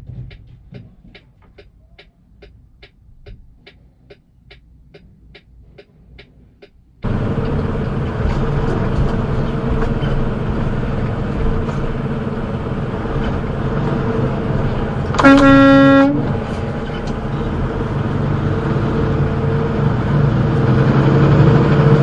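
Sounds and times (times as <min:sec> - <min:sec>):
vehicle road noise: 0:00.0 - 0:22.0
vehicle horn blast: 0:15.1 - 0:16.4.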